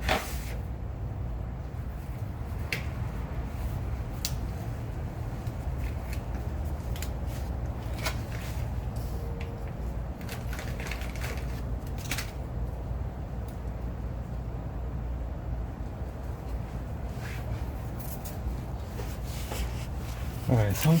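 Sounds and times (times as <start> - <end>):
steady low rumble: 0.6 - 21.0
clicks and crinkles of handled materials: 5.3 - 12.8.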